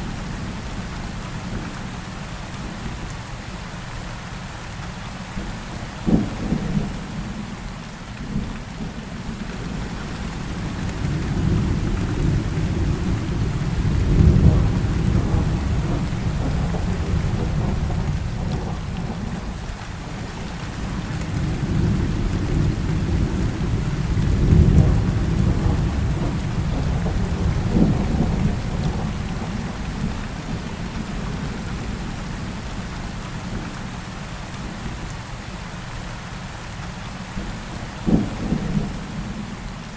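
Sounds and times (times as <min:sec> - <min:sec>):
heavy rain: 0:00.0 - 0:39.9
deep rolls of thunder: 0:10.6 - 0:19.6, 0:20.8 - 0:31.9.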